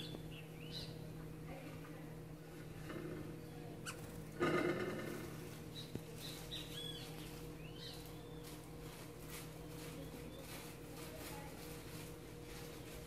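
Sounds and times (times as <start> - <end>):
songbirds chirping and whistling: 0.0 - 1.2, 2.5 - 11.1, 12.2 - 13.0.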